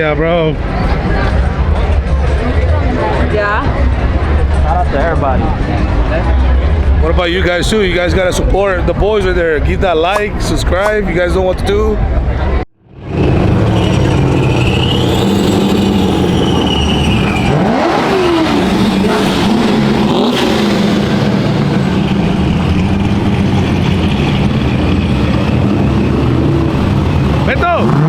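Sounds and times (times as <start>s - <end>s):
vehicle engine running: 15.1s - 28.0s.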